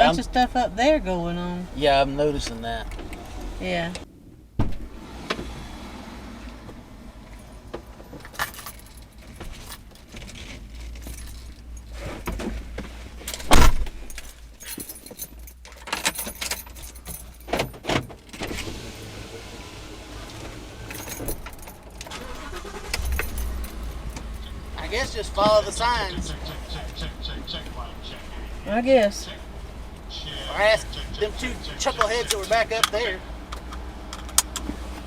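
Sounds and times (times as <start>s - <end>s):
loud thump: 4.6s - 4.9s, 13.5s - 14.0s
objects rattling and clinking in car: 7.2s - 19.1s, 20.2s - 35.0s
steady low rumble: 20.9s - 35.0s.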